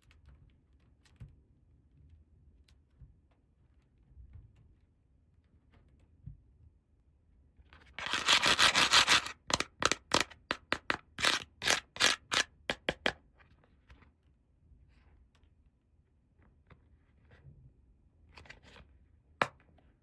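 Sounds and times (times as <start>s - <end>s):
hands scraping plastic toy parts: 8.0s - 13.2s.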